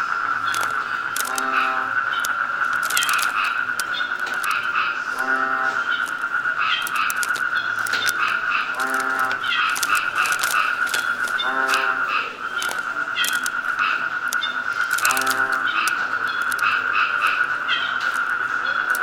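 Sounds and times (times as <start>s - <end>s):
footsteps crunching leaf litter: 0.5s - 19.0s.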